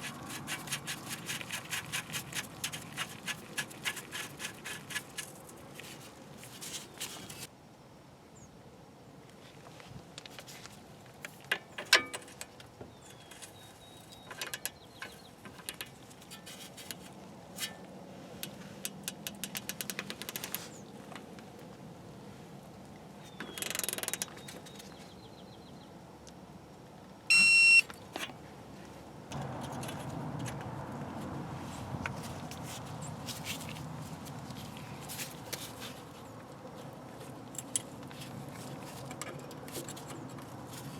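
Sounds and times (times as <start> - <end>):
loud beep: 27.3 - 27.9.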